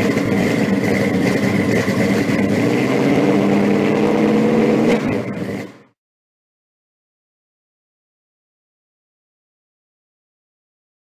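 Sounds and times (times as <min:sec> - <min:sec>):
car engine idling: 0:00.0 - 0:06.0.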